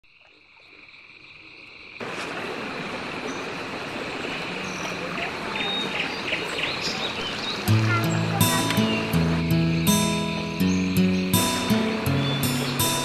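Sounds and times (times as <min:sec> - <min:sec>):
frogs croaking: 0:00.0 - 0:13.0
high insect trill: 0:07.6 - 0:13.0.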